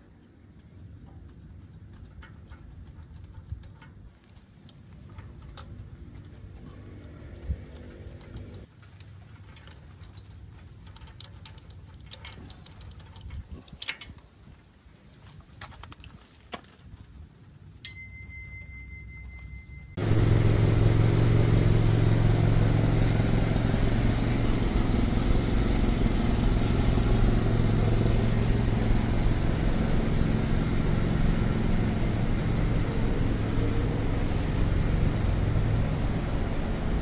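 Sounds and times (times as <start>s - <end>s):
truck engine starting and idling: 20.0s - 37.0s.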